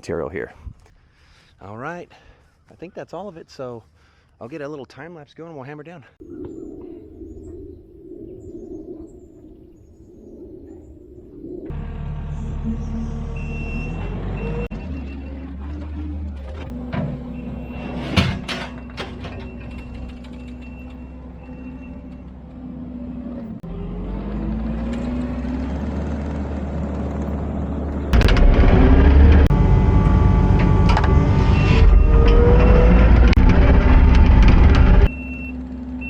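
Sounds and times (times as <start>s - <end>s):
diesel engine running under load: 11.7s - 36.0s.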